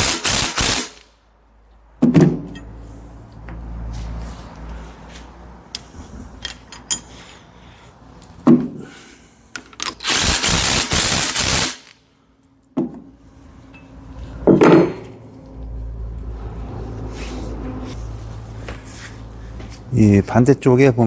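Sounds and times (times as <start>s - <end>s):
impact wrench hammering: 14.5s - 15.1s.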